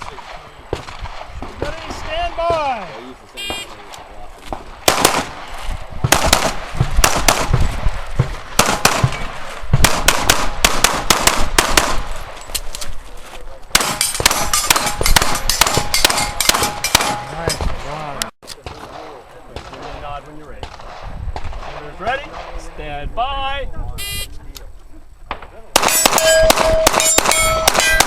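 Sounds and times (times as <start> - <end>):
pistols firing: 0.0 - 12.4, 13.7 - 18.0, 25.3 - 28.0.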